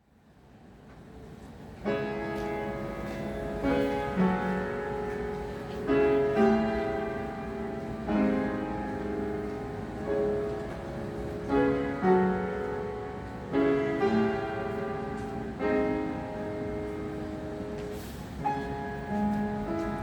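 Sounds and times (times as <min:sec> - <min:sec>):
background noise: 0:00.0 - 0:20.0
piano playing slow chords: 0:01.8 - 0:20.0.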